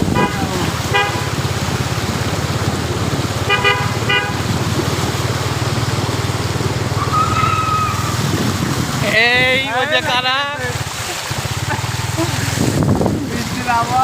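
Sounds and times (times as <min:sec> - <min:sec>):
vehicle horns honking: 0:00.0 - 0:01.7, 0:03.4 - 0:04.7
low traffic rumble: 0:00.0 - 0:14.0.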